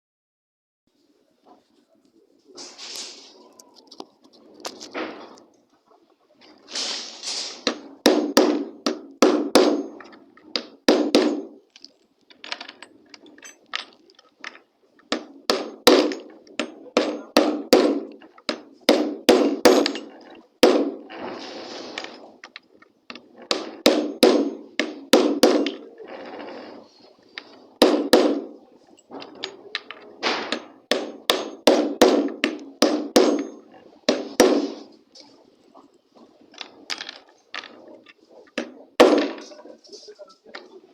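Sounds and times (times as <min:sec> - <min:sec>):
brief scraping: 0:02.6 - 0:03.5, 0:06.6 - 0:07.7, 0:21.2 - 0:22.4
hammer striking nails: 0:07.7 - 0:11.6, 0:15.1 - 0:21.0, 0:23.5 - 0:25.8, 0:27.8 - 0:28.5, 0:30.2 - 0:34.9, 0:38.6 - 0:39.4.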